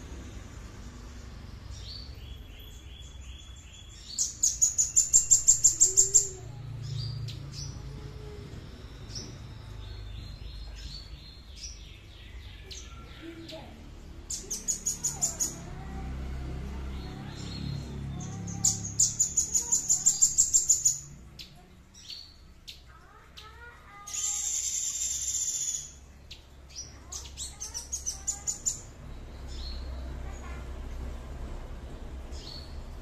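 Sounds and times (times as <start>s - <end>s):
bird buzzy trill: 23.5s - 26.0s.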